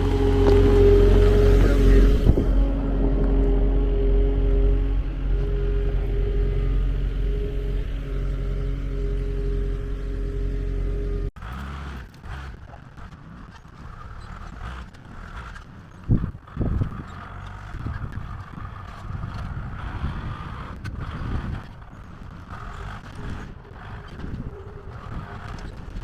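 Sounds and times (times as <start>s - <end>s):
farm machine engine rumbling: 0.0s - 14.0s.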